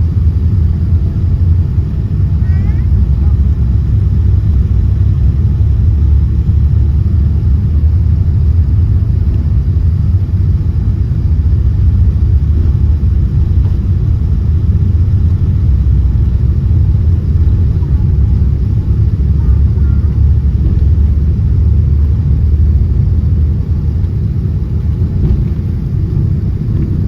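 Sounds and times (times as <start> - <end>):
airliner cabin low rumble: 0.0 - 27.0.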